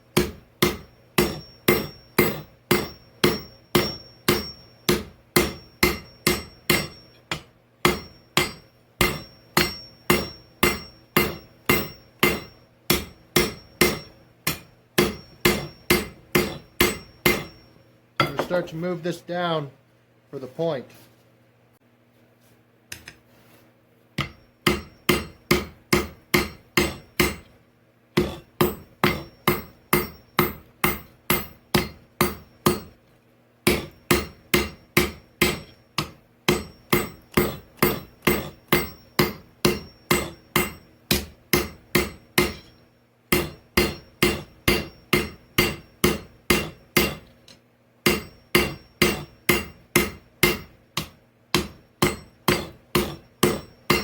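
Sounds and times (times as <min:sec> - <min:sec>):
forge humming: 0:00.0 - 0:19.7, 0:24.2 - 0:54.0
hammer striking on anvil: 0:00.1 - 0:18.8, 0:24.2 - 0:27.6, 0:28.2 - 0:33.0, 0:33.6 - 0:47.4, 0:48.0 - 0:54.0.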